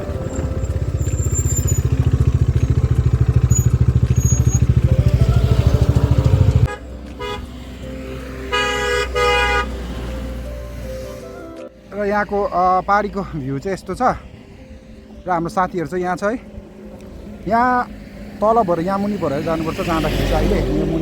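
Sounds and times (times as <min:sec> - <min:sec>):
motorcycle engine thumping: 0:00.0 - 0:06.7
vehicle horn honking: 0:03.4 - 0:07.6, 0:08.5 - 0:09.8.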